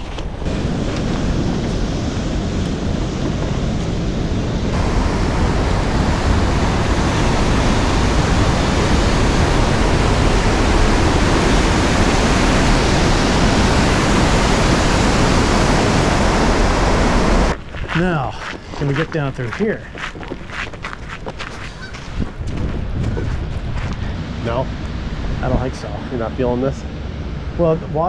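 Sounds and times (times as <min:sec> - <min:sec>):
fast-flowing water rushing: 0:04.7 - 0:17.6.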